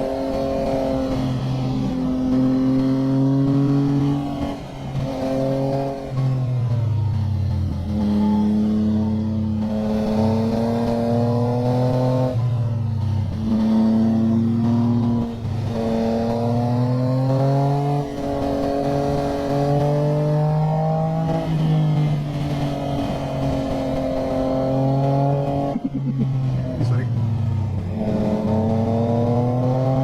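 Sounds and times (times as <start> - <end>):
motorcycle engine shifting gears: 0.0 - 30.0.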